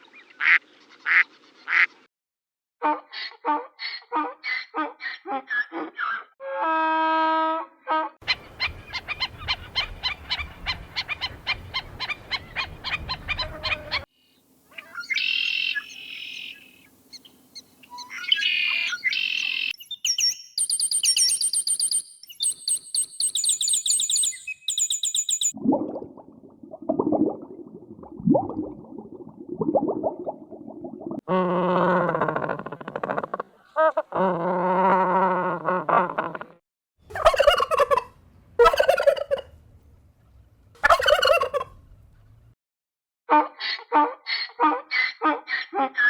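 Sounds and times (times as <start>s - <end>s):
bird calls: 8.2s - 14.1s, 14.7s - 25.6s, 37.1s - 39.4s
high repeated chirps: 15.0s - 17.2s, 17.9s - 25.6s.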